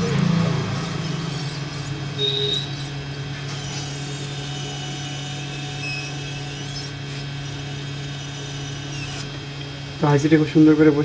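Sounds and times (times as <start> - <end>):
steady hum: 0.0 - 11.0.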